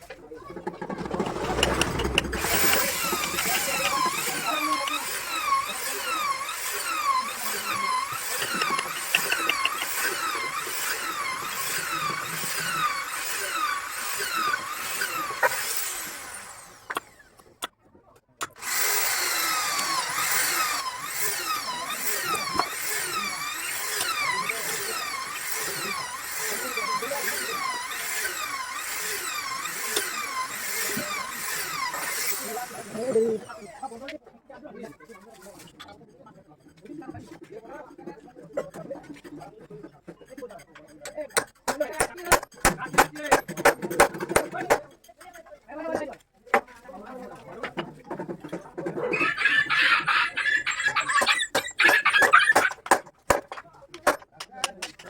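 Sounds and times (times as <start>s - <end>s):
power tool cutting wood: 0.8s - 17.6s, 18.4s - 34.1s, 49.2s - 53.4s.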